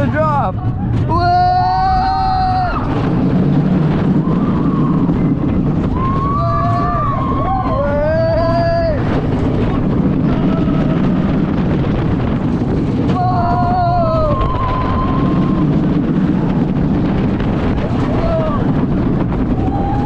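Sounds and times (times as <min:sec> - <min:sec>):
roller coaster rumbling: 0:00.0 - 0:20.0
wind buffeting microphone: 0:00.0 - 0:20.0
riders screaming: 0:01.1 - 0:11.8, 0:13.0 - 0:17.0, 0:17.6 - 0:20.0.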